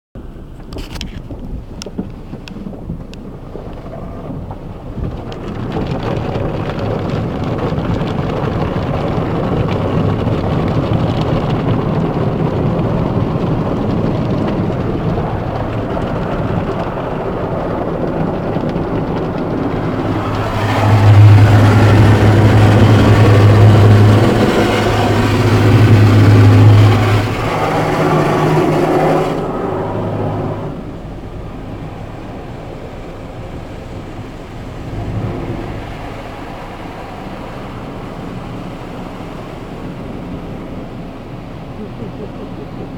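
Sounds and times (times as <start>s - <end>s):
water spraying: 6.2s - 42.9s
low machine hum: 12.8s - 42.9s.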